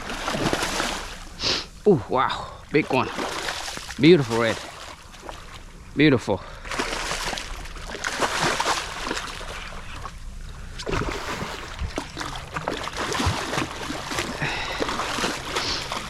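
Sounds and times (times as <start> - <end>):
water splashing and sloshing: 0.0 - 1.8, 2.4 - 16.0.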